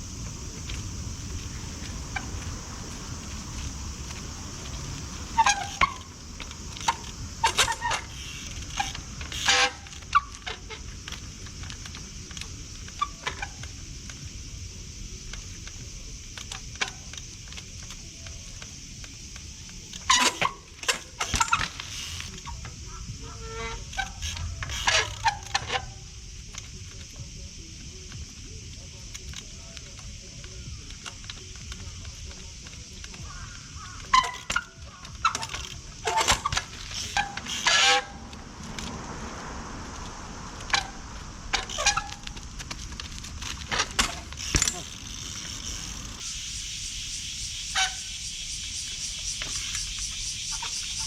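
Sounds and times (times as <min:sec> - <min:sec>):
steady hiss of rain: 0:00.0 - 0:09.3, 0:38.2 - 0:51.0
short squeaks: 0:03.6 - 0:11.2, 0:19.7 - 0:26.1, 0:32.7 - 0:39.0, 0:40.0 - 0:46.4, 0:47.7 - 0:48.2, 0:49.4 - 0:51.0
sharp knocks of bike landing: 0:16.3 - 0:26.7, 0:29.2 - 0:38.9, 0:40.0 - 0:46.2.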